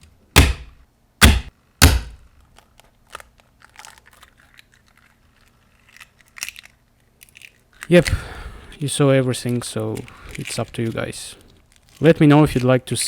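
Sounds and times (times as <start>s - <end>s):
eggs cracking: 2.5s - 12.8s.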